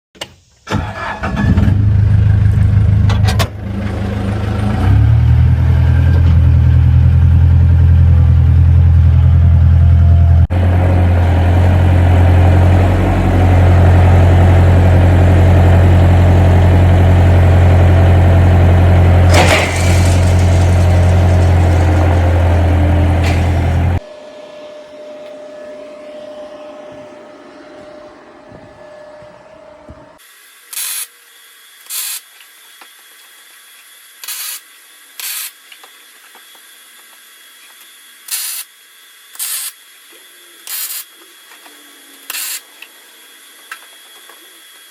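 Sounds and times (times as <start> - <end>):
engine droning: 0.7 - 30.2.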